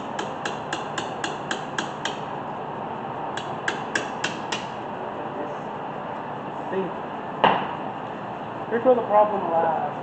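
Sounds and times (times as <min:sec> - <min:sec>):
socket ratchet clicking: 0:00.0 - 0:02.2.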